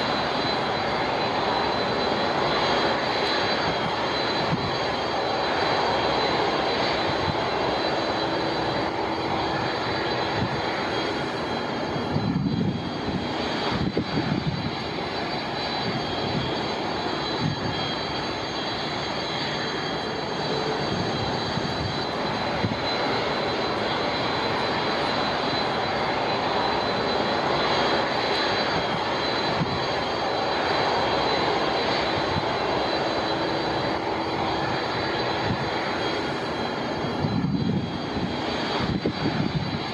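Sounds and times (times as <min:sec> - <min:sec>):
jet engines whining: 0:00.0 - 0:39.9
wind buffeting microphone: 0:03.4 - 0:05.6, 0:08.8 - 0:18.6, 0:20.6 - 0:25.1, 0:27.4 - 0:29.9, 0:33.9 - 0:39.9.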